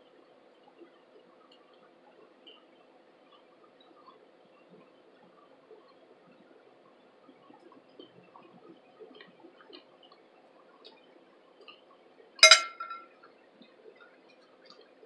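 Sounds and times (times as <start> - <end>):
sharp ringing clink: 12.4 - 13.0.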